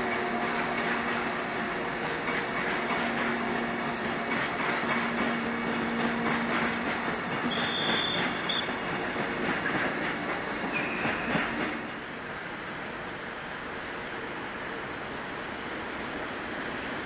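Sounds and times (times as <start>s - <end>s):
train wheels on rails: 0.0s - 17.0s
high wheel squeal: 7.5s - 8.8s, 10.7s - 11.5s.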